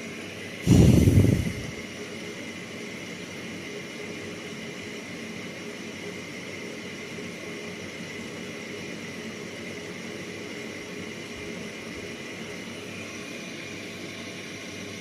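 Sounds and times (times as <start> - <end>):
low rumble: 0.7 - 1.8.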